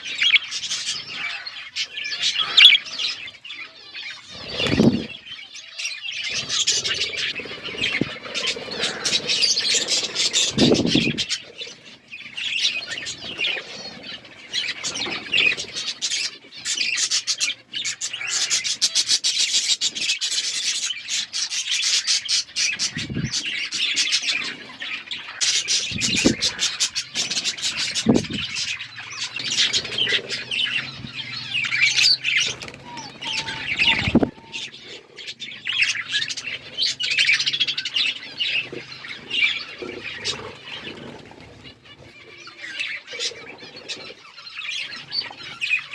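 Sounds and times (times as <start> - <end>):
budgerigars chirping: 0.0 - 45.9.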